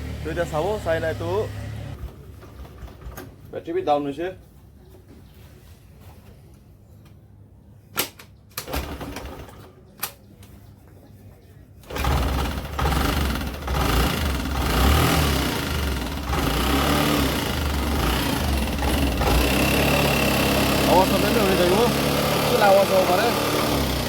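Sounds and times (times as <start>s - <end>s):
scooter engine running: 11.9s - 24.0s.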